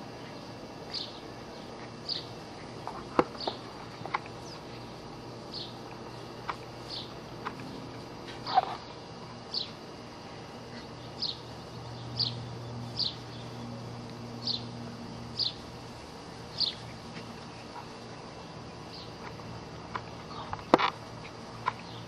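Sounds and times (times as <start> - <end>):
bird chirping: 0.3 - 2.4, 5.5 - 6.2, 9.5 - 9.8, 10.8 - 13.6, 14.4 - 14.7, 15.3 - 15.6, 16.3 - 17.0.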